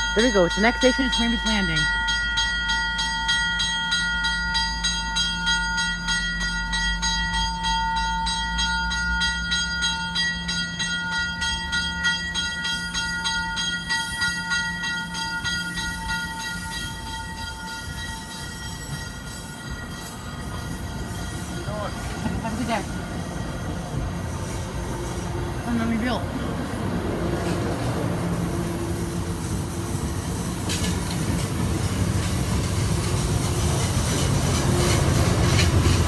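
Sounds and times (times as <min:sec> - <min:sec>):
diesel locomotive engine rumble: 0:00.0 - 0:36.0
train wheels clicking: 0:00.0 - 0:36.0.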